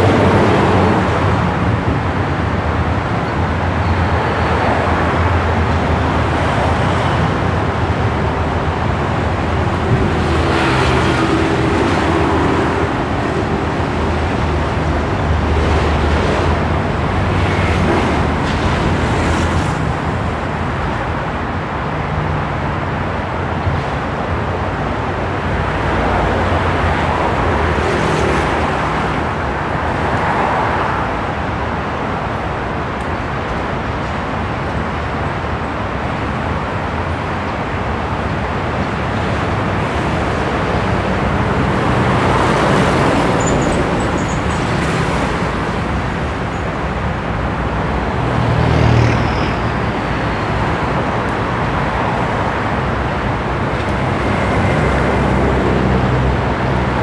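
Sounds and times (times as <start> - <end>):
vehicles passing on road: 0.0 - 57.0.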